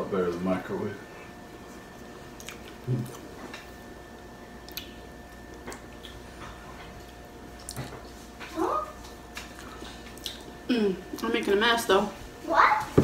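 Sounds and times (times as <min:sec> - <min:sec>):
chewing mouth clicks and smacks: 0:02.4 - 0:03.3, 0:04.6 - 0:06.2, 0:09.4 - 0:10.5
low hum-like vocal sound: 0:09.6 - 0:11.2.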